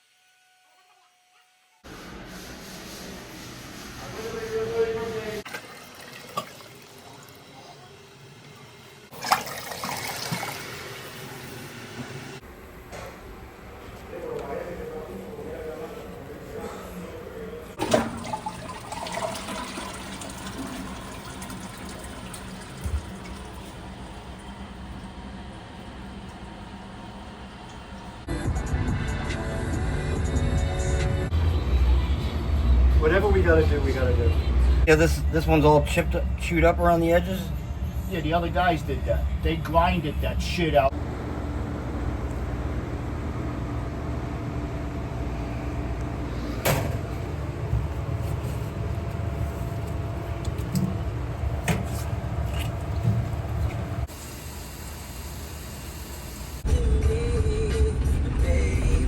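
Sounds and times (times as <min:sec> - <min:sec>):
water running: 0:05.4 - 0:12.2, 0:17.8 - 0:28.1
faint hum: 0:11.1 - 0:59.0.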